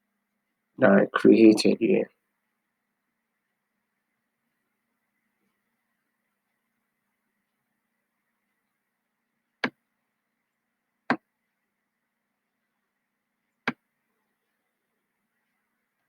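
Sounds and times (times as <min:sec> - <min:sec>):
computer mouse clicks: 0:09.6 - 0:09.8.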